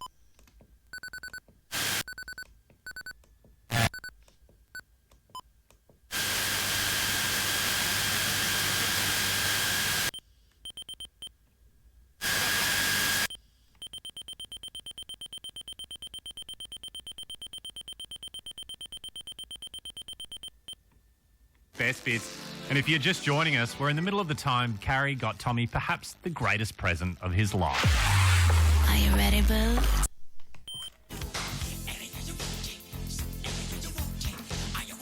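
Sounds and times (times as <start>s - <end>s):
short electronic beeps: 10.7s - 11.3s, 13.8s - 20.8s.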